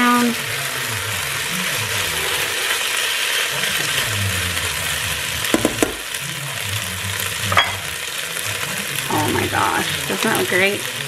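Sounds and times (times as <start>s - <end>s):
food sizzling in a pot: 0.0s - 11.0s
tongs clacking down: 7.5s - 7.9s.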